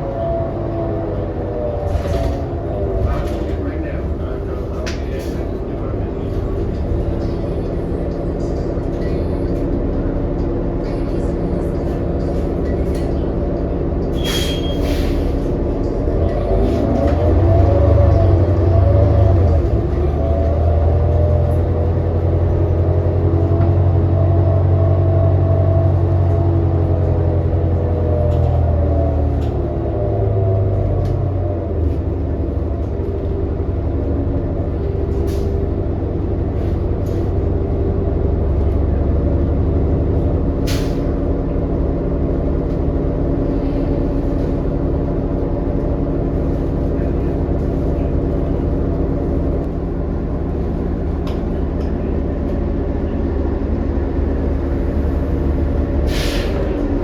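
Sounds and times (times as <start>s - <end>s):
bus engine and drivetrain: 0.0s - 57.0s
sharp air hiss: 56.1s - 56.6s.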